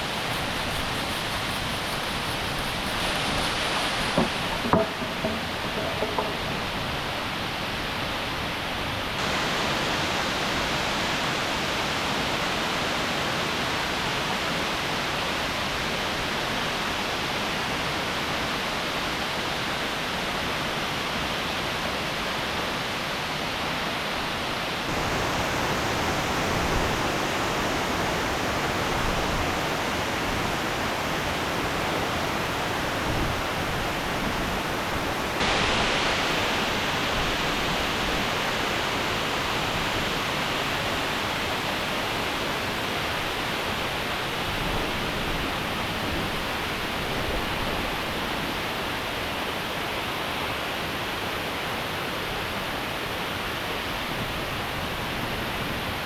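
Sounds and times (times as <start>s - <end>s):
waterfall rushing: 0.0s - 21.5s, 24.8s - 47.1s.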